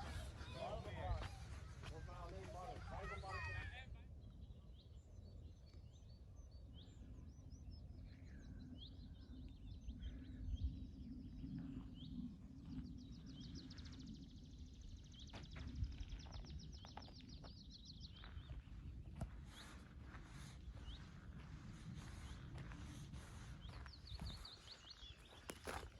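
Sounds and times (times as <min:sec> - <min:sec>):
songbirds chirping and whistling: 0:00.0 - 0:25.9.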